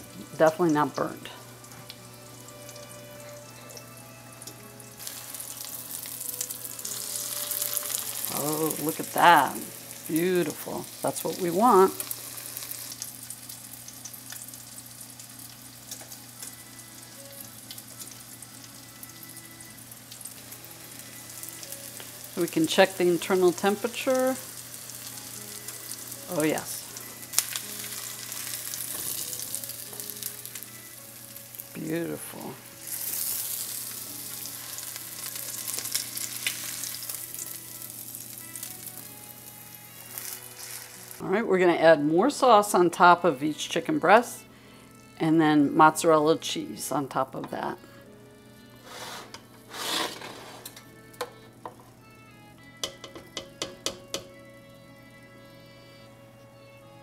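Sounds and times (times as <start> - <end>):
chicken frying in oil: 4.6 - 41.2.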